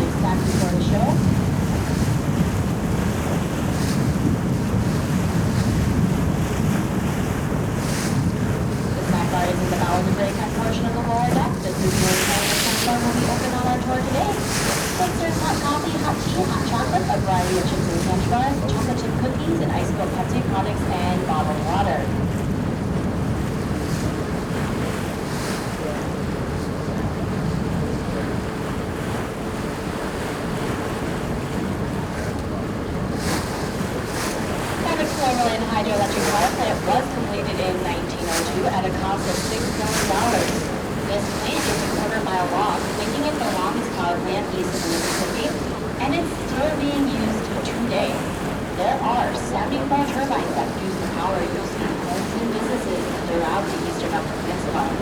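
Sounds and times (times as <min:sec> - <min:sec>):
water rushing along boat: 0:00.0 - 0:55.0
wind buffeting microphone: 0:00.0 - 0:55.0
low engine drone: 0:34.8 - 0:55.0.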